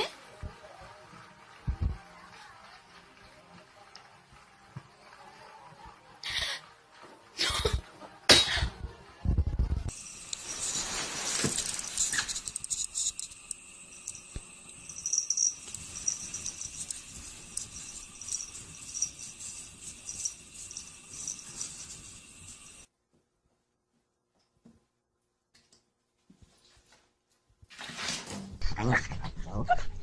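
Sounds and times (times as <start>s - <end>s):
steady high hiss: 9.9s - 22.9s
light metallic jingling: 10.2s - 22.8s.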